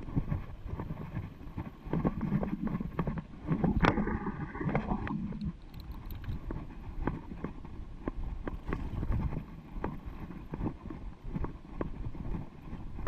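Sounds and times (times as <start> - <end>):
tyre and wind noise: 0.0 - 13.0
bike rattling over rock: 8.2 - 11.5.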